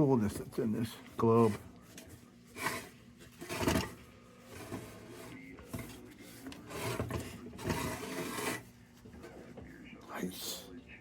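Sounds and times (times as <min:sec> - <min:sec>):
glass globe rubbing and scraping: 0:02.5 - 0:08.8.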